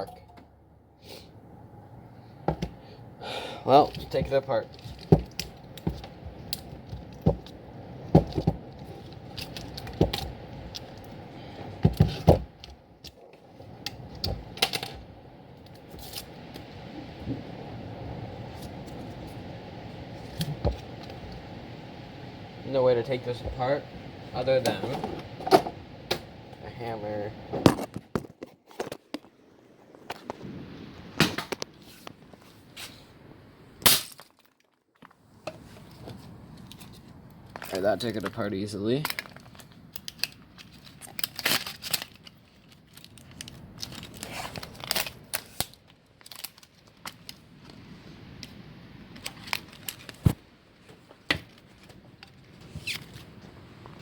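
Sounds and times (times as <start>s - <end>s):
handling noise: 3.8s - 15.1s.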